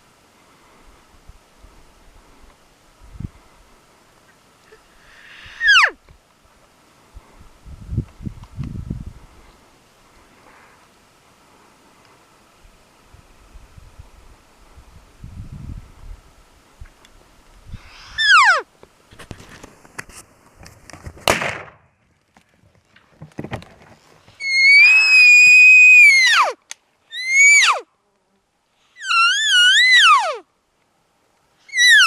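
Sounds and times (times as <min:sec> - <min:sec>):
elk call mews: 0:05.3 - 0:06.0, 0:18.1 - 0:18.7, 0:29.0 - 0:30.4
rustling: 0:16.7 - 0:21.4.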